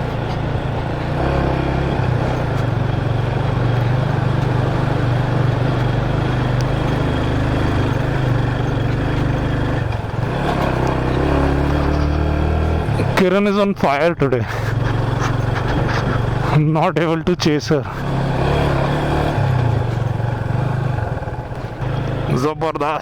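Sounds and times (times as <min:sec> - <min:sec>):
motorcycle engine running: 0:00.0 - 0:23.0
road and air noise hiss: 0:14.4 - 0:16.4.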